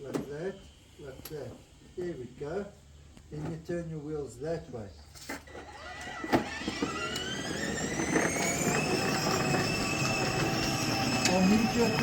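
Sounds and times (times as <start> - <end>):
toy tractor motor whine: 5.5 - 12.0.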